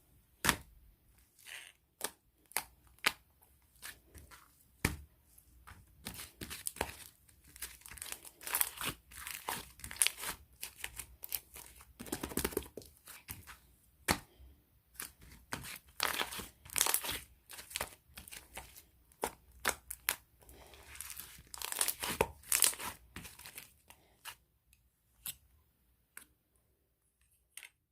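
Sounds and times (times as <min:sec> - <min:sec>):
crinkling and tearing: 0:20.9 - 0:23.7.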